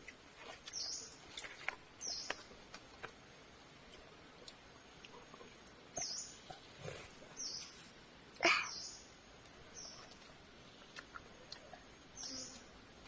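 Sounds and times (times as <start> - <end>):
bird chirping: 0.7 - 1.2, 2.0 - 2.5, 5.9 - 7.9, 9.7 - 11.1, 12.2 - 12.7.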